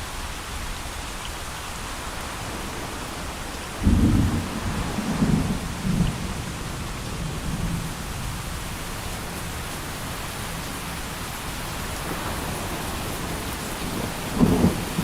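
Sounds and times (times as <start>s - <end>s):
steady rain hissing: 0.0s - 15.0s
low thunder rumble: 2.4s - 8.7s, 12.2s - 15.0s.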